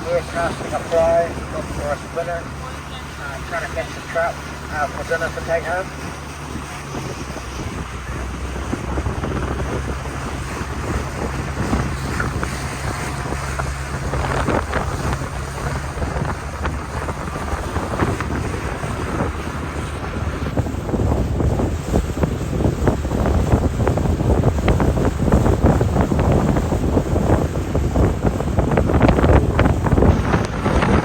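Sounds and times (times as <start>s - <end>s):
motorboat engine hum: 0.0s - 31.0s
water splashing against hull: 0.0s - 31.0s
wind buffeting microphone: 0.0s - 31.0s.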